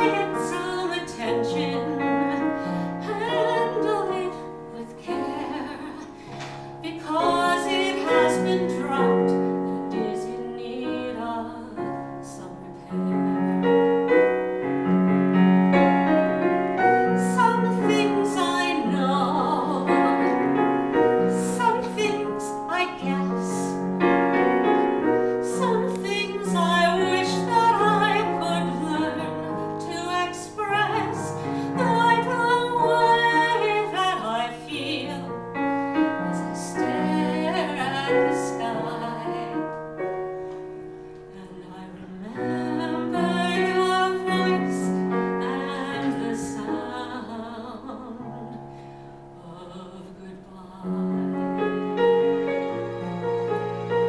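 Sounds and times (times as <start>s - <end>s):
woman singing with vibrato: 0.0s - 13.9s, 17.1s - 20.6s, 21.2s - 23.8s, 25.4s - 35.4s, 36.0s - 39.8s, 41.3s - 48.6s, 49.3s - 51.6s
electronic keyboard piano: 12.9s - 41.4s.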